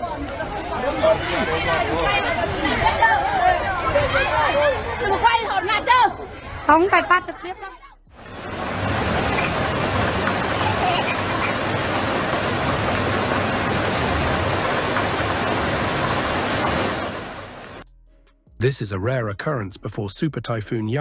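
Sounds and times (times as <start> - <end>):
loud rushing noise: 8.2 - 17.8.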